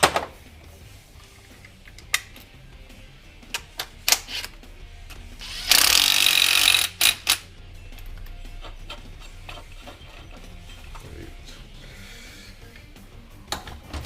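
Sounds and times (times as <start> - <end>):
power tool burst: 5.4 - 7.4.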